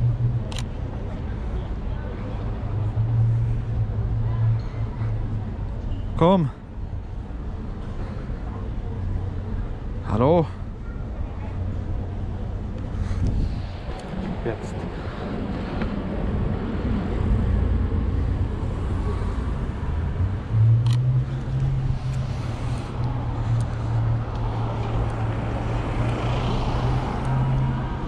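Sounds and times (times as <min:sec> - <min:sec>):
city street traffic: 0:00.0 - 0:28.0
car engine humming: 0:13.6 - 0:28.0.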